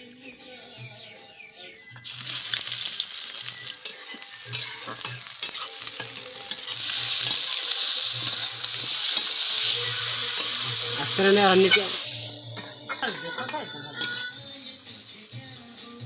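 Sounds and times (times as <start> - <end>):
onions sizzling in hot oil: 2.0 - 14.4.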